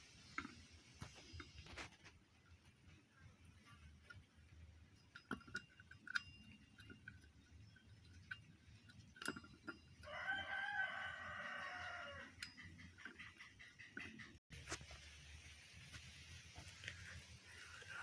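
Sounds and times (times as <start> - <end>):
light clicks and clinks: 3.6 - 14.3.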